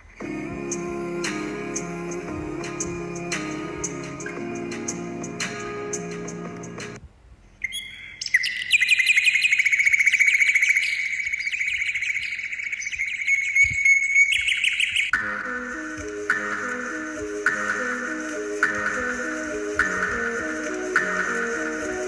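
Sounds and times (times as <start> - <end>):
bird singing high trill: 7.6 - 22.0.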